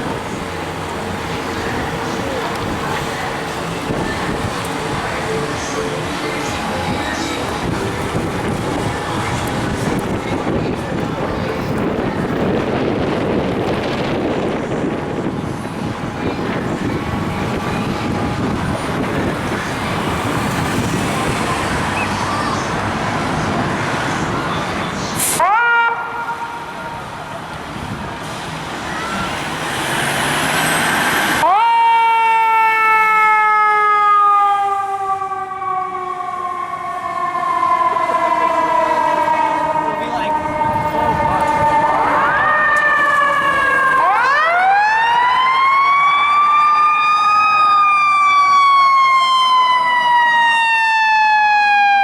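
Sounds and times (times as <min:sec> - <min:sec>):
street traffic engine rumble: 0:00.0 - 0:52.0
fire siren winding down: 0:25.2 - 0:26.8, 0:28.8 - 0:52.0.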